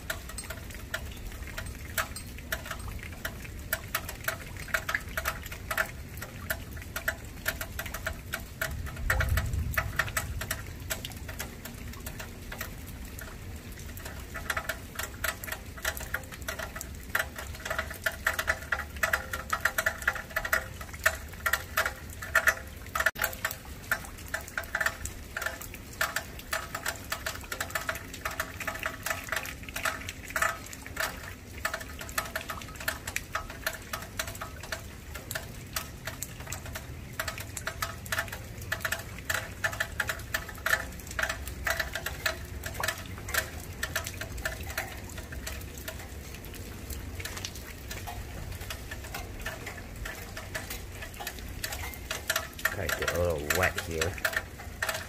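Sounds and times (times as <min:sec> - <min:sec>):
rain dripping on hard surface: 0:00.0 - 0:55.0
low storm rumble: 0:07.3 - 0:15.2, 0:41.2 - 0:55.0.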